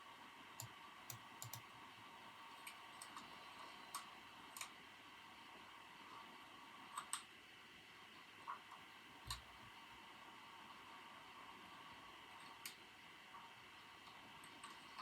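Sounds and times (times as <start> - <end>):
faint background hum: 0.0 - 15.0
keyboard keystrokes: 0.6 - 1.6.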